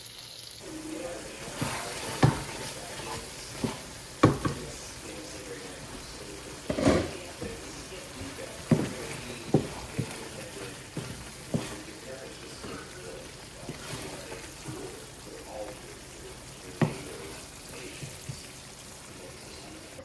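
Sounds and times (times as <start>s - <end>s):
low frying sizzle: 0.0s - 20.0s
utensils clinking against cookware: 0.6s - 20.0s.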